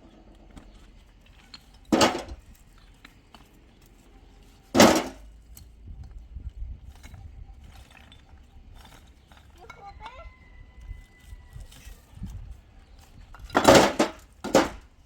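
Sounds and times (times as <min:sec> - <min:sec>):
loud short thuds: 0:04.8 - 0:05.2.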